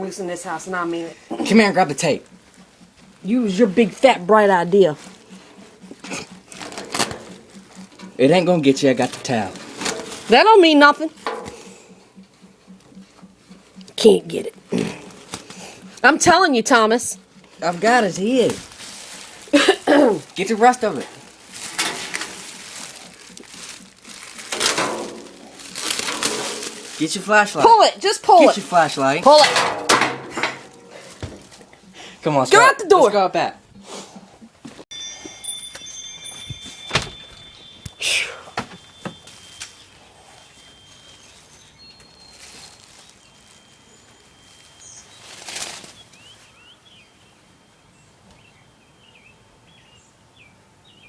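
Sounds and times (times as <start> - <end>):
rustling and crinkling handling: 0.1 - 31.9, 33.8 - 47.1
bird wings flapping: 1.6 - 27.6, 42.4 - 46.4
faint bird chirps: 35.8 - 51.0.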